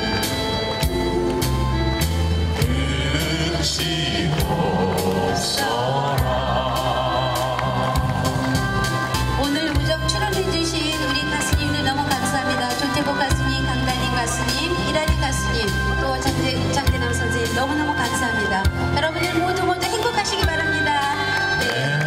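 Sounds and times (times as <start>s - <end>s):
instrumental backing with beat: 0.0s - 22.0s
person singing: 2.5s - 8.7s.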